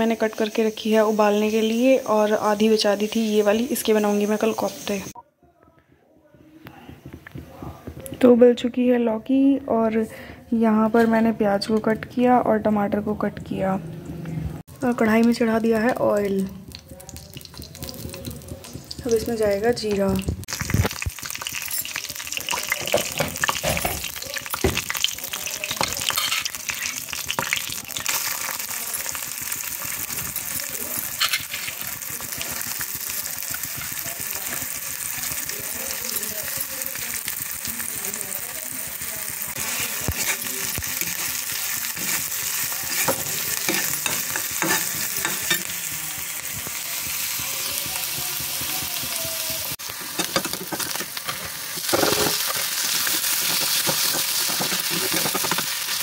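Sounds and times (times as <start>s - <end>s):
hot oil sizzling: 0.0s - 5.2s, 14.6s - 56.0s
spatula scraping and knocking pan: 38.8s - 56.0s.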